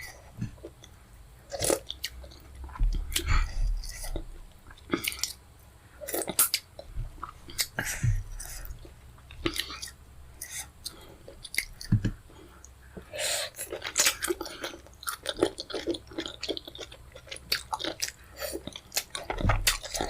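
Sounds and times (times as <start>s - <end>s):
wet chewing and lip smacking: 8.4s - 12.8s, 13.5s - 20.0s.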